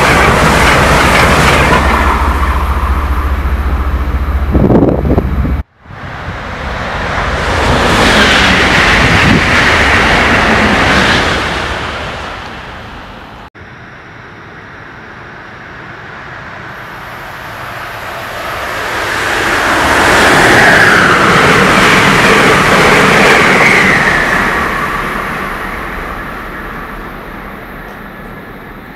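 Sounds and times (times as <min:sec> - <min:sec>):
passenger train passing at speed: 0:00.0 - 0:28.9
train rushing past: 0:00.0 - 0:28.9.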